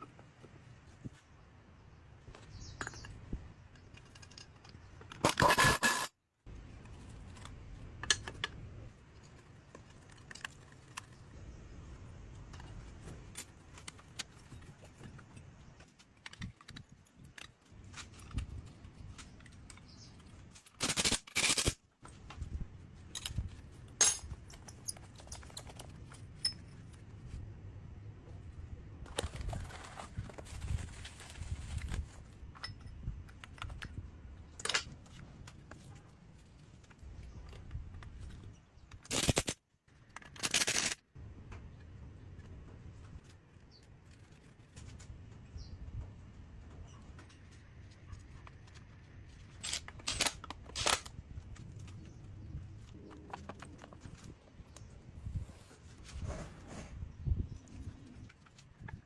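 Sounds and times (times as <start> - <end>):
metal tools clinking and scraping: 2.4 - 6.1, 12.5 - 27.2.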